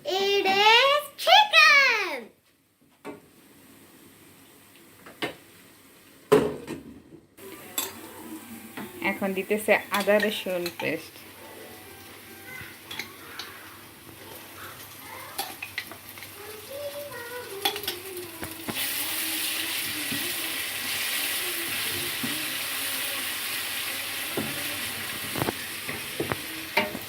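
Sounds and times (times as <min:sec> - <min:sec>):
spices sizzling in oil: 0:07.4 - 0:27.0.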